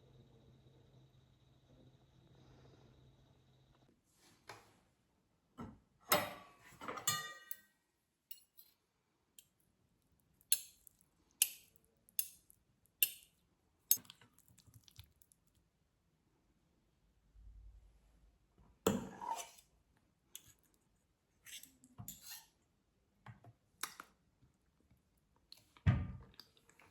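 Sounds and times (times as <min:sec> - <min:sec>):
china or glass clinking: 0:07.0 - 0:07.6.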